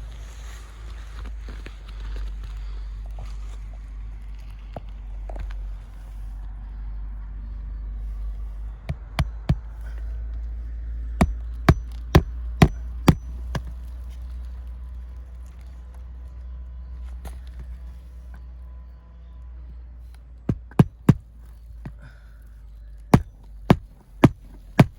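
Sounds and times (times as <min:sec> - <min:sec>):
hammer blows on roof: 0:08.9 - 0:09.8, 0:11.2 - 0:13.7, 0:20.5 - 0:21.3, 0:23.2 - 0:24.9.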